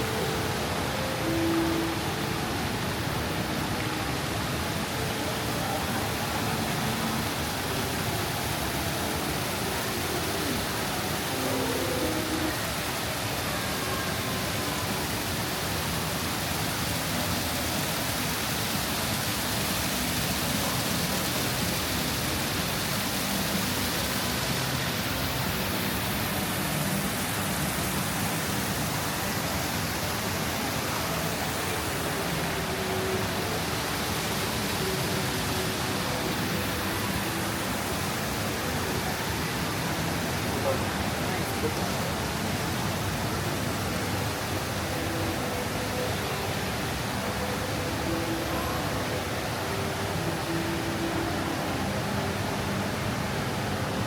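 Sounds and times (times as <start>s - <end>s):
waterfall rushing hiss: 0.0s - 54.0s.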